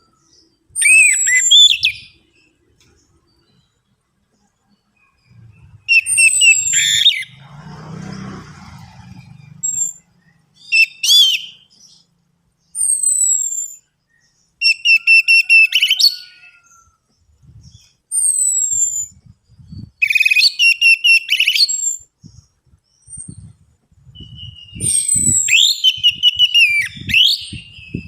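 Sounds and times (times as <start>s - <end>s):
faint low rumble: 4.3s - 6.2s.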